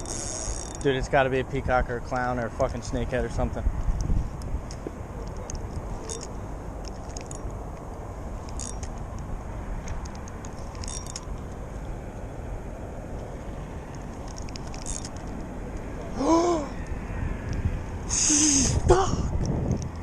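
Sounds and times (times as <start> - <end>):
low outdoor rumble: 0.0 - 20.0
man crying out: 16.1 - 16.8, 18.1 - 19.4.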